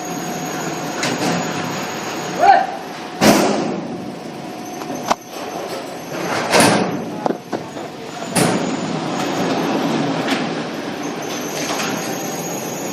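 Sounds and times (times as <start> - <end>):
machine mechanical clatter: 5.3 - 12.9.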